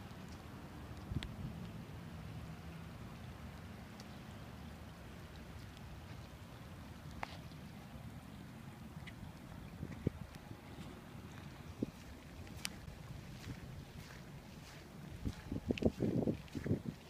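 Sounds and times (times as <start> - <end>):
raindrop clicks: 0.0 - 1.8, 3.5 - 7.8, 12.4 - 16.7
light rain on water and pavement: 0.0 - 17.0.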